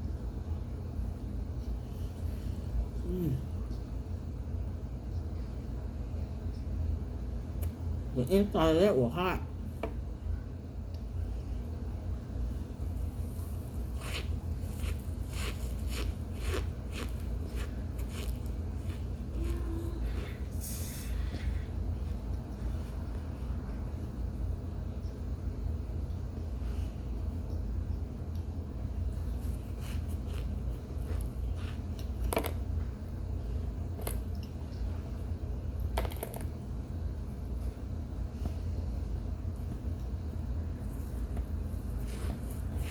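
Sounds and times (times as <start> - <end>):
steady low hum: 0.0 - 42.9
squeaky chewing crunches: 14.0 - 19.6.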